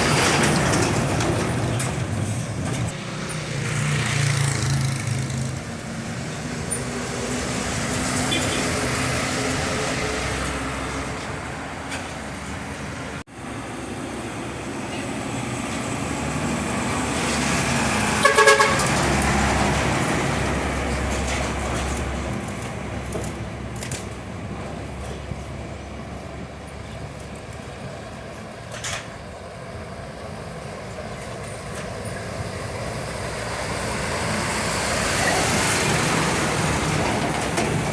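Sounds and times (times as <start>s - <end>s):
trucks passing on road: 0.0s - 37.9s
horn toot: 18.2s - 19.0s.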